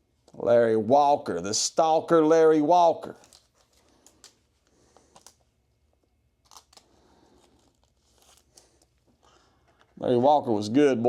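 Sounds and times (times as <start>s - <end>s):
cards and packaging handled: 3.1s - 10.0s.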